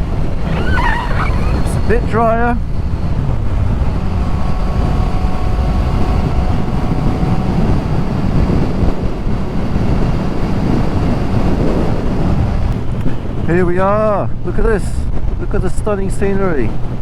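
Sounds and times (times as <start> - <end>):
wind rushing over microphone: 0.0 - 17.0
motorcycle engine running: 2.6 - 13.4.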